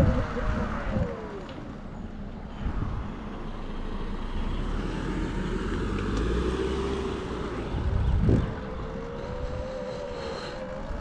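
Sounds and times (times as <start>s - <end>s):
wind rumble on microphone: 0.0s - 1.8s, 2.4s - 3.5s, 5.2s - 11.0s.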